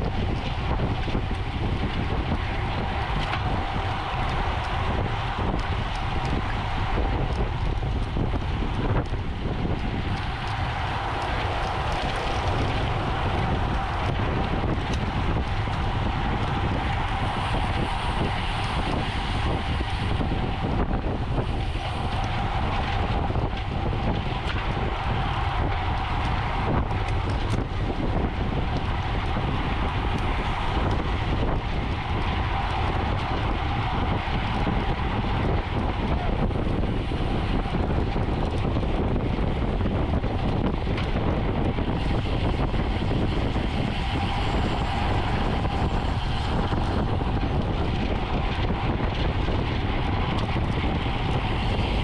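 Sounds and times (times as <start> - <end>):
bicycle road and drivetrain noise: 0.0 - 52.0
wind rushing over microphone: 0.0 - 52.0.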